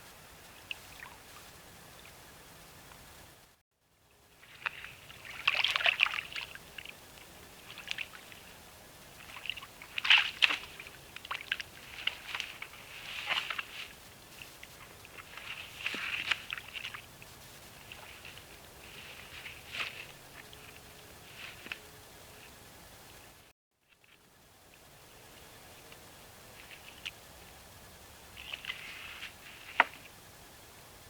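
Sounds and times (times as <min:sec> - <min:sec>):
water sloshing and splashing: 0:04.4 - 0:21.8, 0:28.4 - 0:30.1.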